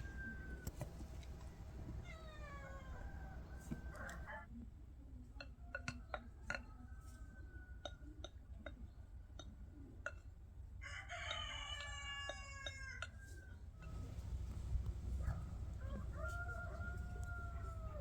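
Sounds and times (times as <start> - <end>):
rooster crowing: 2.6 - 4.4, 10.8 - 14.2, 15.2 - 18.0.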